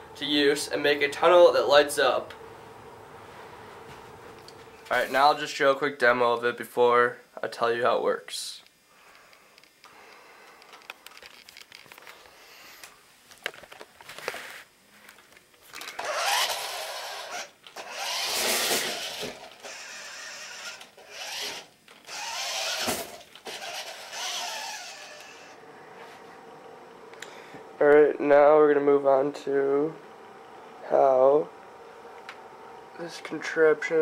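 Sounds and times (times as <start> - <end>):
toy car motor whirring: 15.8 - 25.6.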